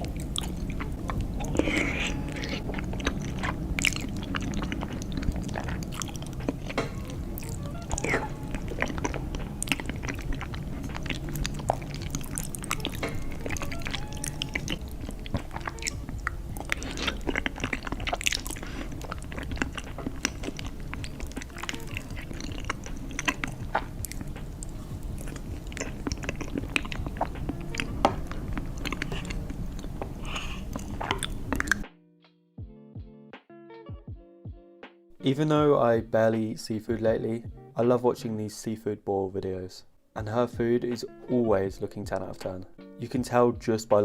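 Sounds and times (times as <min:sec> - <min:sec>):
close chewing and biting food: 0:00.0 - 0:31.9.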